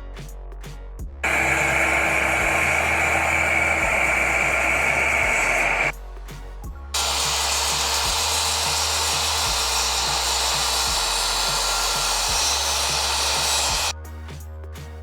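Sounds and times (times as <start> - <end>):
background music with beat: 0.0 - 9.8, 10.8 - 15.0
power tool motor whirring: 1.2 - 5.9, 7.0 - 13.9.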